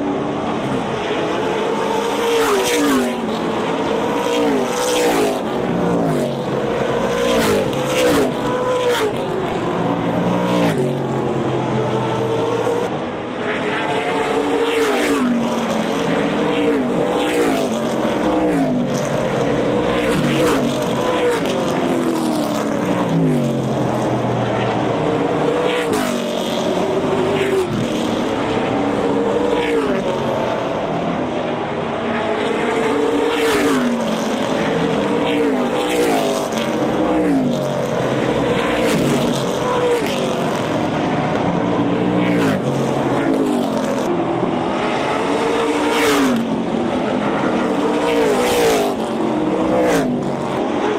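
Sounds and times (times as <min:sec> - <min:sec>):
race car engines at full throttle: 0:00.0 - 0:50.9.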